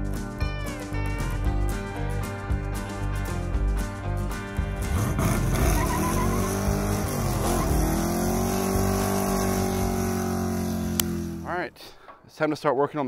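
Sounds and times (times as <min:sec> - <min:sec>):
car engine revving hard: 0:04.8 - 0:11.4.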